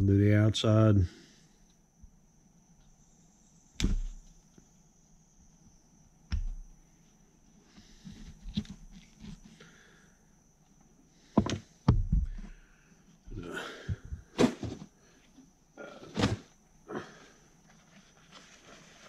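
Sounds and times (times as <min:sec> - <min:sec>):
rustling and scraping: 0:06.6 - 0:09.7, 0:11.3 - 0:16.6, 0:17.6 - 0:19.0.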